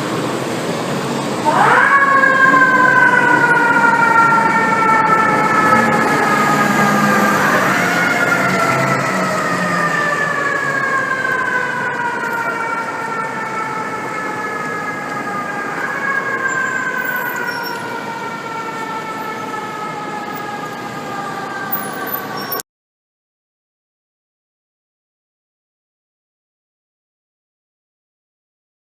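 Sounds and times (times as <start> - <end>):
fire engine siren wailing: 0.0 - 22.6.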